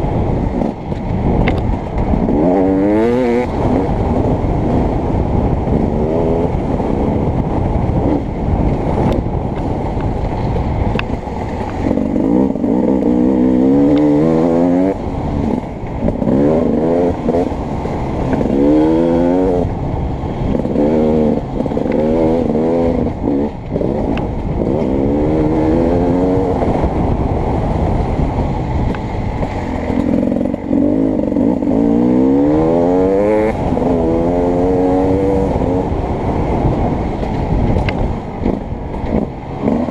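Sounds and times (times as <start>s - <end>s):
dirt bike engine revving: 2.1s - 4.6s, 11.5s - 19.7s, 20.5s - 27.2s, 29.4s - 39.9s.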